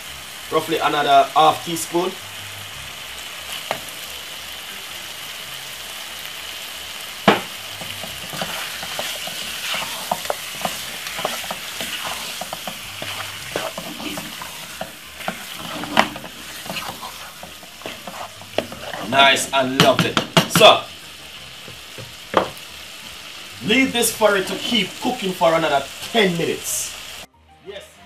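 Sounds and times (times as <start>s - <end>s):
chicken sizzling in hot oil: 0.0s - 27.3s
spoon scraping and clinking pot: 8.0s - 19.1s.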